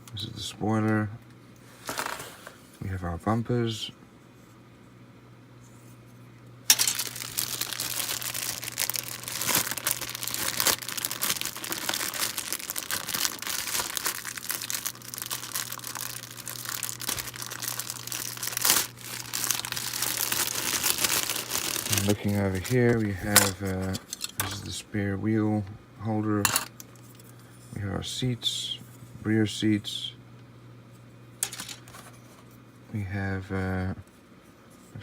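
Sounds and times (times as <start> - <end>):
plastic packaging crinkling: 6.7 - 24.6, 31.4 - 32.4.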